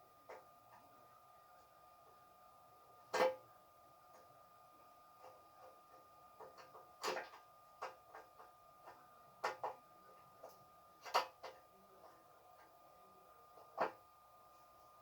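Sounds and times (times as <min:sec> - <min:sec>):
faint high hum: 0:00.0 - 0:15.0.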